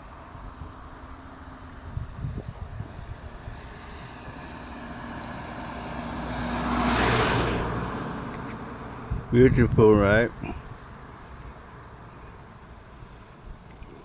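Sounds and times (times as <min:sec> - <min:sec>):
car driving past: 0:03.1 - 0:09.4.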